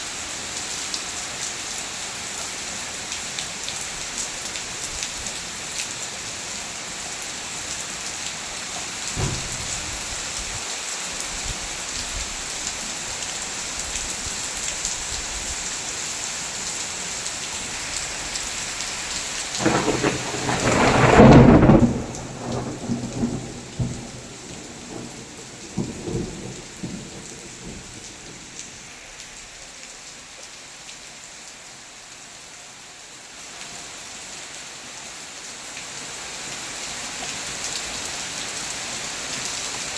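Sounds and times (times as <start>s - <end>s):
heavy rain falling: 0.0s - 39.9s
thunder clap and rumbles: 9.1s - 10.6s, 19.5s - 28.6s.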